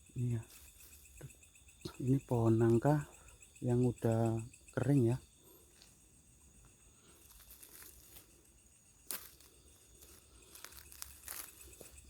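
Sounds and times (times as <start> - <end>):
crickets chirring: 0.0 - 12.0
crackling rustles: 7.0 - 12.0.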